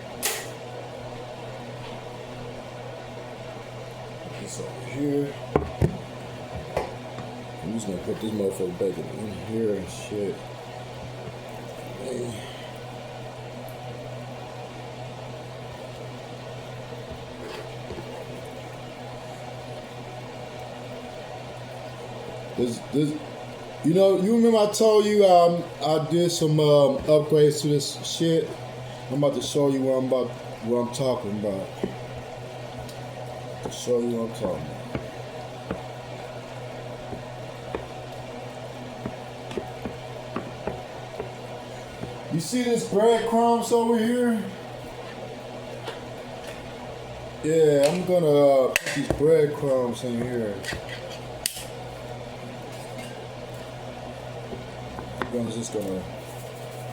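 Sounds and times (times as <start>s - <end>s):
kitchen appliance humming: 0.0s - 56.9s
food simmering with pops and crackles: 31.7s - 42.4s.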